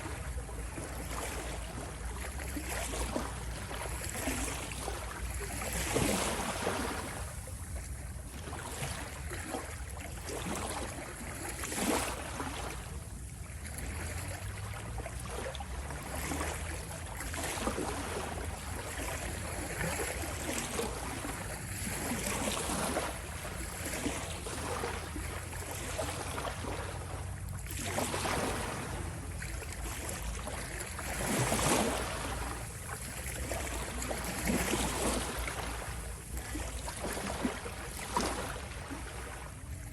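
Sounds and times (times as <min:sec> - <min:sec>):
ocean waves washing in: 0:00.0 - 0:39.9.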